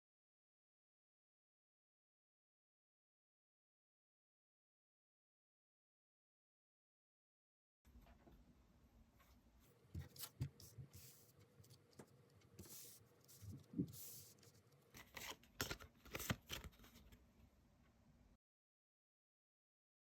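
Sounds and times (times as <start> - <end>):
cards sliding on table: 12.6 - 14.5.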